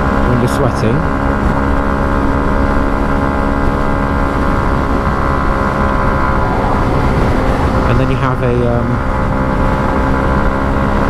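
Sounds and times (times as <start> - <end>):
motorcycle engine running: 0.0 - 11.0
wind rush: 2.6 - 11.0.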